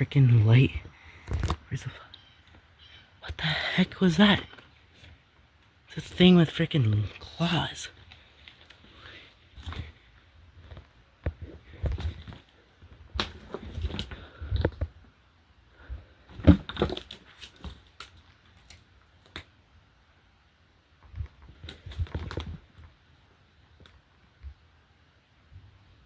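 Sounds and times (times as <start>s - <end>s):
knocks and thumps of movement: 10.6s - 15.0s, 16.3s - 17.9s.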